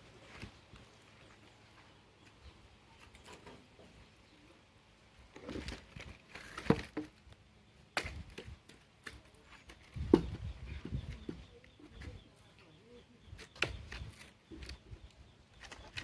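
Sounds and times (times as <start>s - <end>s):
firewood knocking and rustling: 8.0s - 12.2s.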